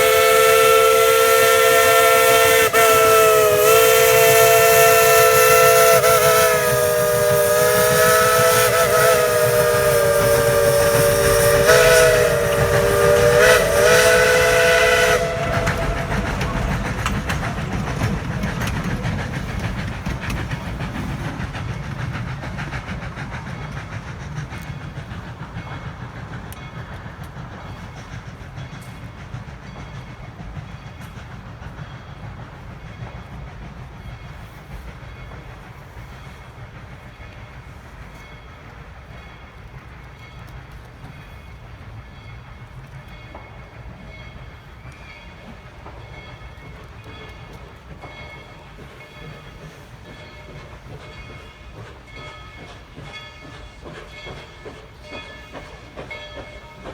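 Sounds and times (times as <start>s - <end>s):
steam locomotive whistle: 0.0s - 20.0s
rail clicks: 0.0s - 56.9s
train running rumble: 0.0s - 56.9s.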